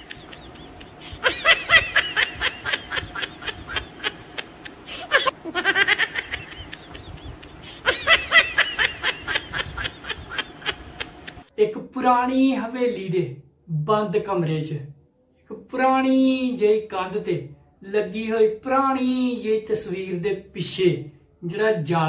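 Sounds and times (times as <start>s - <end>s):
canned high-pitched giggling: 0.0s - 11.5s.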